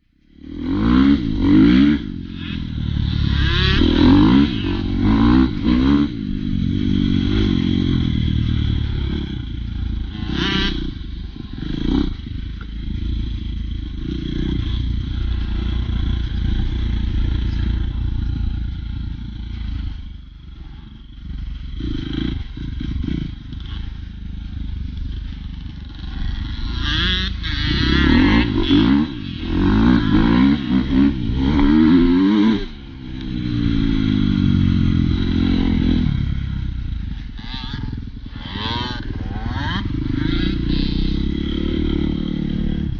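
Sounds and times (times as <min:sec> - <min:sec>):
dirt bike engine revving: 0:00.3 - 0:42.9.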